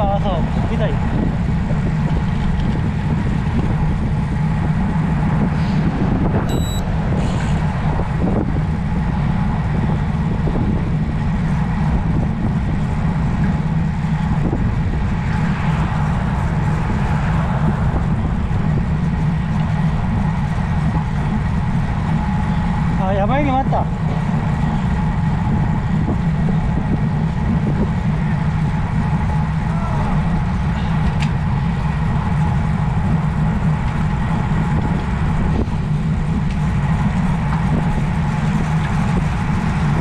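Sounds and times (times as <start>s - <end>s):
road noise: 0.0s - 40.0s
wind rushing over microphone: 0.0s - 40.0s
electronic beep: 6.5s - 6.9s.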